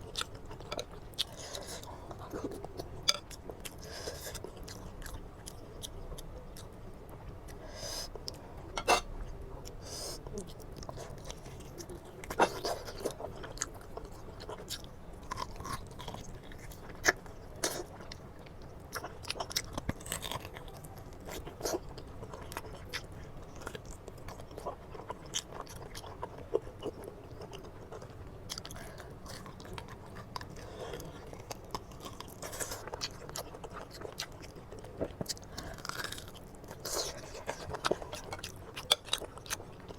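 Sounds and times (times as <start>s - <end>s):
person chewing food: 0.0s - 6.7s, 7.4s - 39.9s.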